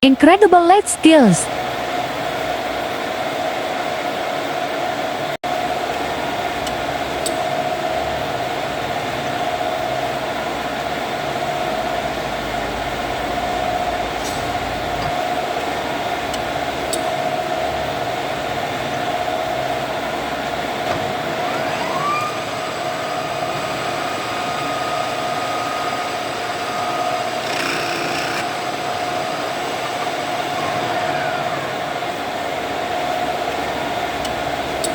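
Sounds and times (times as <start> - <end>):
metal lathe whining: 21.2 - 28.5.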